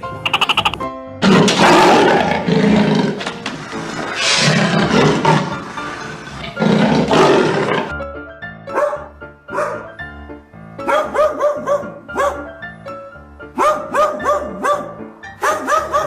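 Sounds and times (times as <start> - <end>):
background music: 0.0 - 16.0
large animal roaring: 1.2 - 7.9.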